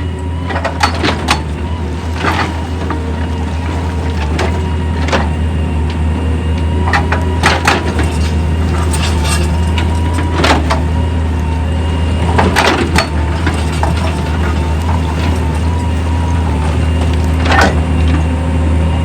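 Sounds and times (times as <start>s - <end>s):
heavy machinery engine drone: 0.0s - 19.0s
clanks of rock or steel: 0.5s - 1.5s.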